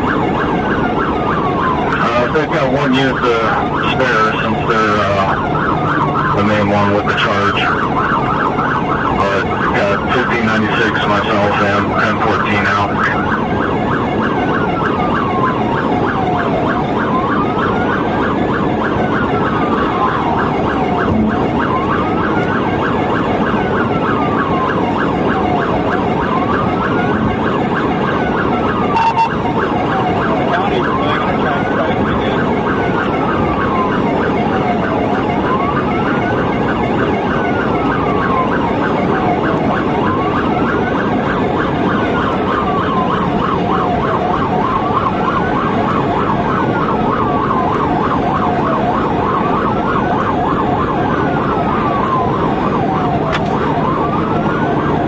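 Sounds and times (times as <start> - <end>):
police siren wailing: 0.0 - 55.0
road and engine noise: 0.0 - 55.0.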